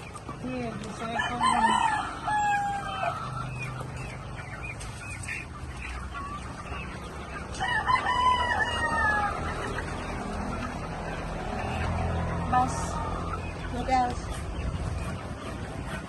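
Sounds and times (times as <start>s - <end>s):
chickens clucking: 0.0s - 16.0s
rooster crowing: 1.2s - 3.2s, 7.6s - 9.5s.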